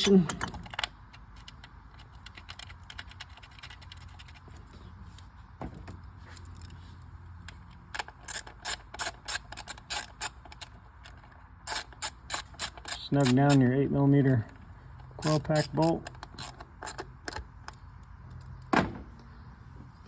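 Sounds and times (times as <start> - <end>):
hand ratchet clicking: 8.0 - 10.7, 11.6 - 13.6, 15.1 - 17.4.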